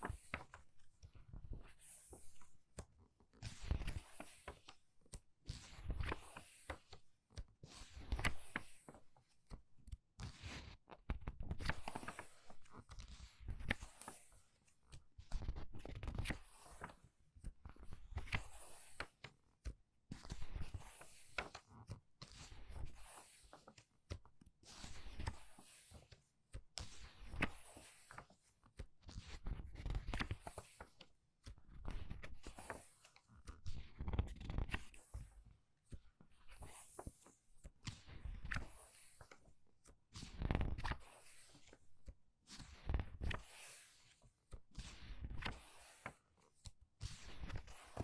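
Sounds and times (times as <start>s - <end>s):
book pages turning: 0.0s - 0.5s, 3.6s - 4.8s, 5.8s - 6.8s, 8.0s - 9.0s, 11.4s - 12.5s, 13.1s - 14.3s, 15.4s - 17.0s, 18.2s - 19.1s, 22.7s - 23.8s, 25.0s - 26.0s, 27.2s - 28.3s, 31.8s - 33.2s, 34.0s - 35.1s, 36.4s - 37.3s.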